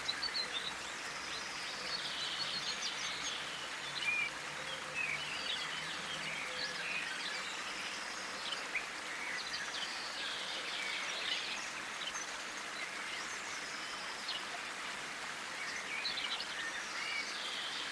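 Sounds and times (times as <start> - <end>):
songbirds chirping: 0.0 - 17.9.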